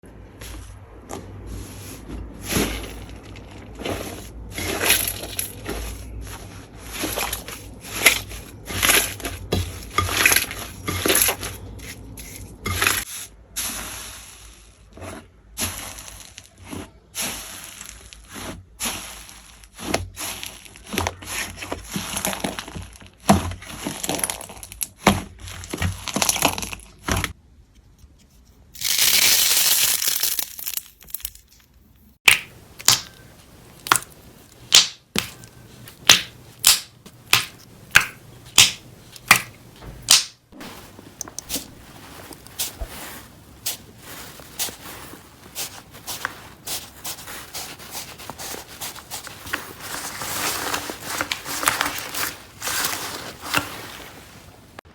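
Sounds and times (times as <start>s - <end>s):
slime crackling and popping: 32.3s - 40.4s.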